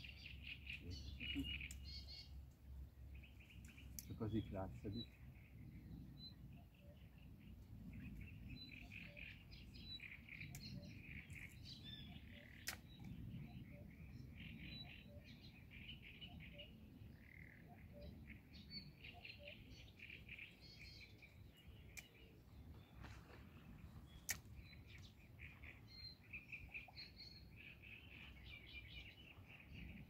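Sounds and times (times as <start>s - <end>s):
small birds chirping: 0.0s - 30.0s
sharp click: 12.6s - 13.0s, 24.2s - 24.5s.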